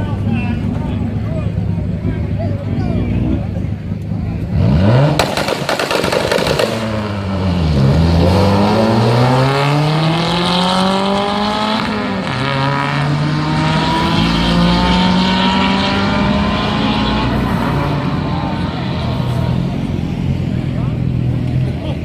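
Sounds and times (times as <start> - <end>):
car engine accelerating: 0.0 - 22.0
engine popping: 5.2 - 7.3.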